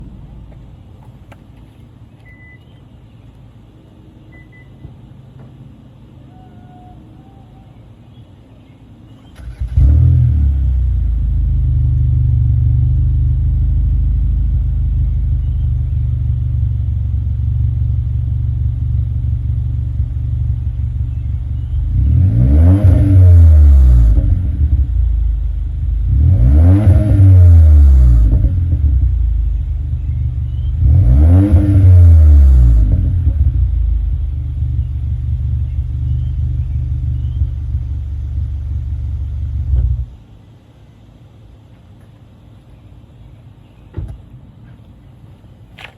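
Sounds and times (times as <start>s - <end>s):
car engine idling: 0.0s - 22.8s, 23.4s - 26.3s, 28.2s - 31.0s, 32.7s - 45.9s
car engine starting: 9.1s - 40.4s
car engine revving: 9.4s - 15.4s, 16.2s - 40.1s.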